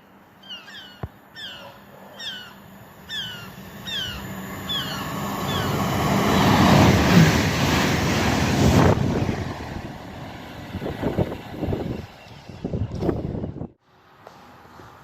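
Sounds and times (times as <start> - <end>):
train approaching rushing noise: 2.2 - 13.6.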